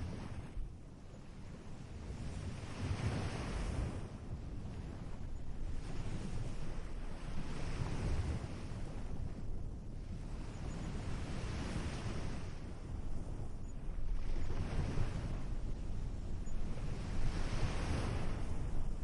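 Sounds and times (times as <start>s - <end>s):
wind rumble on microphone: 0.0s - 19.0s
waves breaking on beach: 4.8s - 9.4s, 10.1s - 19.0s.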